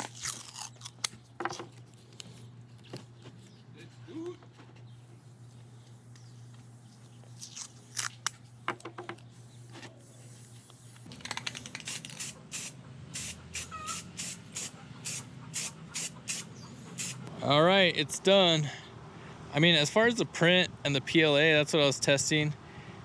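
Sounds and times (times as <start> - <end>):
steady low hum: 0.0 - 23.0
hissing spray bursts: 11.8 - 17.3.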